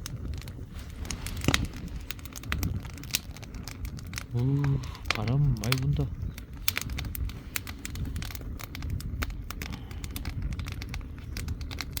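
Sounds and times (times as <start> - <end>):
firewood crackling: 0.0 - 12.0
wind rumble on microphone: 0.0 - 12.0.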